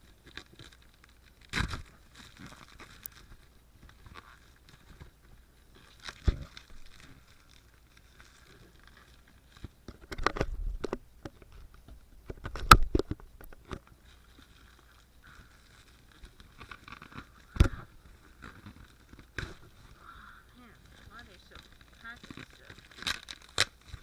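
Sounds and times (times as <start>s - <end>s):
packaging rustling and crinkling: 0.0s - 24.0s.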